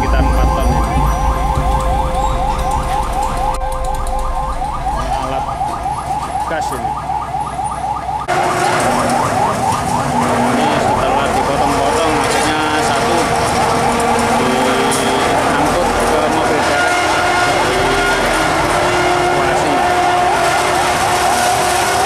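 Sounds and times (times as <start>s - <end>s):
electronic siren yelping: 0.0s - 22.0s
traffic rumble: 0.0s - 22.0s.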